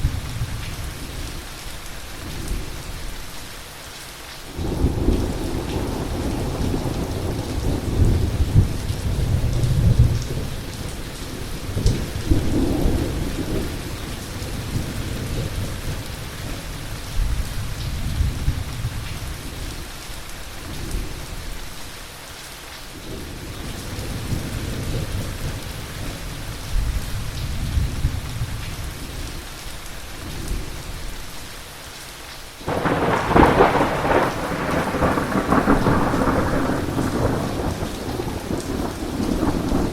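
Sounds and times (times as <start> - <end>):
heavy rain: 0.0 - 39.9
loud thunderclap: 32.7 - 39.9
thunder rolling: 32.7 - 39.9.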